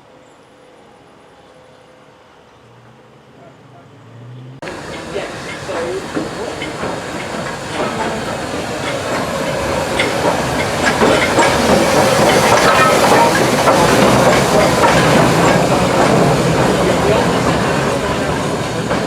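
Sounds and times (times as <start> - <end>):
train running on rails: 0.0 - 19.0
hiss of steam: 4.6 - 19.0.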